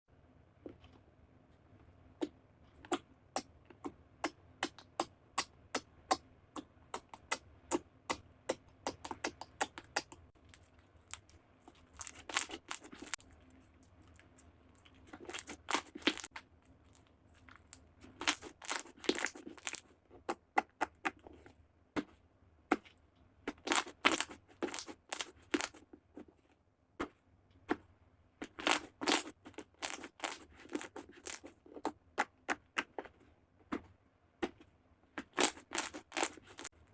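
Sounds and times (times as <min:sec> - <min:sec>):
slime crunchy crackling: 0:10.5 - 0:13.3, 0:15.1 - 0:16.4, 0:18.0 - 0:19.8, 0:23.6 - 0:25.8, 0:28.5 - 0:31.6, 0:35.2 - 0:36.7
slime popping: 0:35.2 - 0:36.7.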